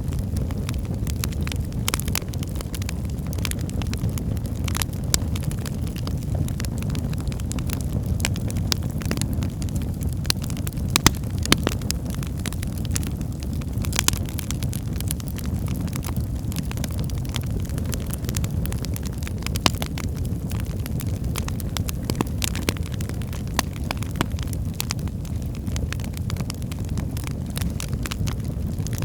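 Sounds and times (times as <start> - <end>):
burning logs crackling and popping: 0.0 - 29.0
fire flames rushing: 0.0 - 29.0.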